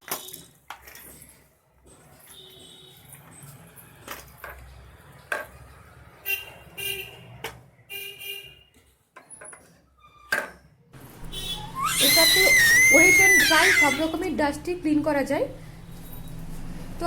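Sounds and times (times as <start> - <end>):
short honking tones: 11.2 - 14.2.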